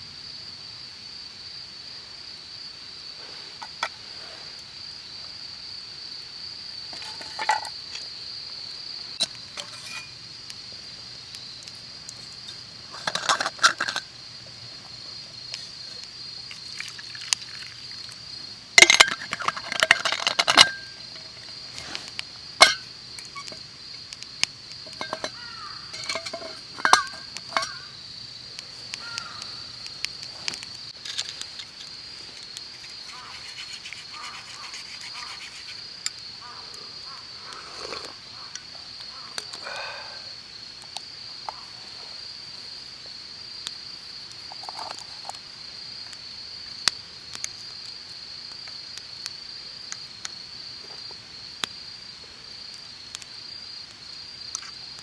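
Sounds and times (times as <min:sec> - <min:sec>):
insects chirring: 0:00.0 - 0:55.0
camp gear clinking and knocking: 0:03.6 - 0:04.0, 0:06.9 - 0:08.2, 0:09.2 - 0:10.2, 0:12.1 - 0:18.2, 0:18.8 - 0:23.7, 0:24.7 - 0:27.9, 0:28.6 - 0:35.8, 0:44.5 - 0:45.4.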